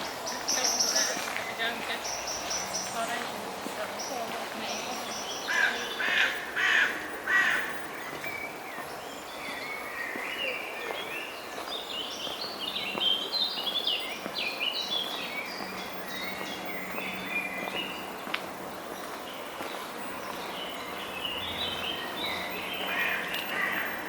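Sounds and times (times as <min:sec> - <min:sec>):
songbird singing: 0:00.0 - 0:24.0
crow cawing: 0:05.5 - 0:07.8, 0:22.9 - 0:24.0.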